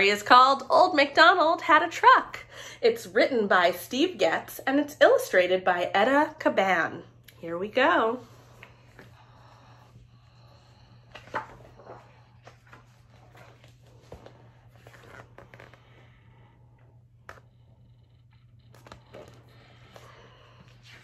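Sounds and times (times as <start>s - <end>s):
steady low hum: 0.0s - 21.0s
paper pages rustling: 11.1s - 15.8s.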